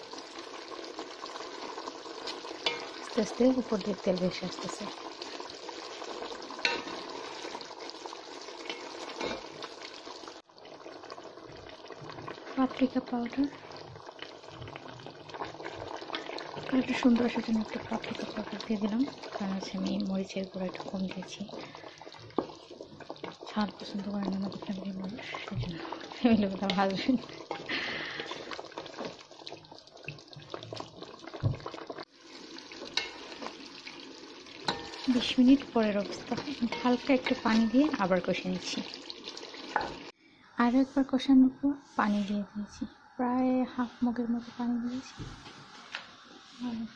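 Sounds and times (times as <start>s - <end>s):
curry bubbling in a pot: 0.0s - 40.2s.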